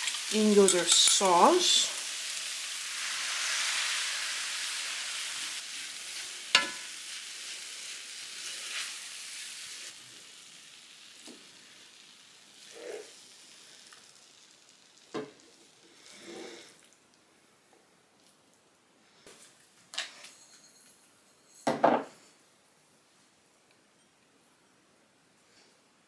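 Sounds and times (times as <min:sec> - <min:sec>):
vegetables sizzling in a pan: 0:00.0 - 0:16.9
utensil stirring and knocking pan: 0:06.5 - 0:06.9.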